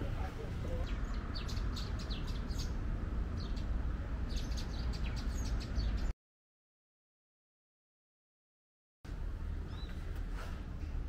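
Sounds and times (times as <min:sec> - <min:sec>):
small birds chirping: 0:00.0 - 0:06.1, 0:09.6 - 0:10.2
steady low rumble: 0:00.0 - 0:06.1, 0:09.1 - 0:11.0.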